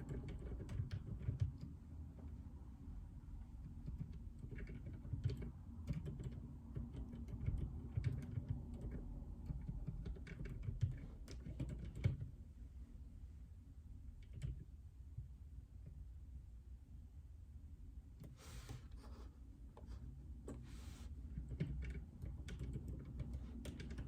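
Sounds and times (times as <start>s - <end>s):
typing on mechanical keyboard: 0.0s - 1.8s, 3.6s - 12.3s, 14.2s - 14.7s, 21.4s - 24.0s.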